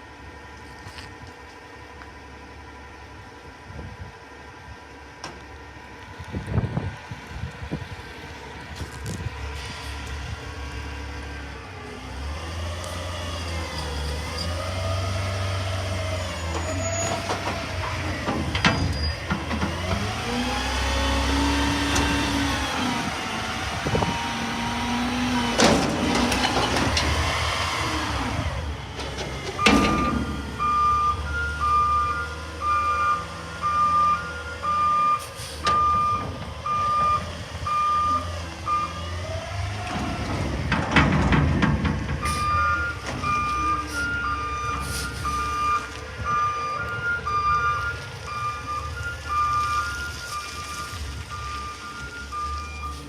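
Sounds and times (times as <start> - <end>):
two-tone back-up alarm beeping: 29.6 - 39.0, 42.3 - 53.0.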